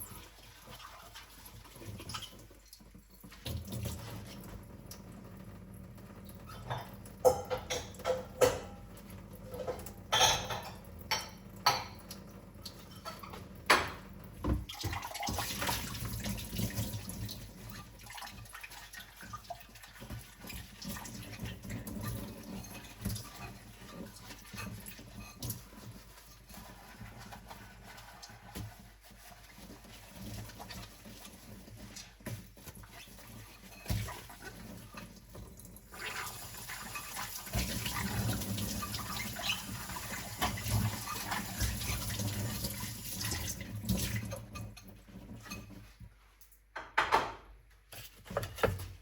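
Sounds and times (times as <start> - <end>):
running water: 0.0 - 46.0
crockery clinking and knocking: 6.8 - 8.8, 9.5 - 12.0, 46.8 - 47.5.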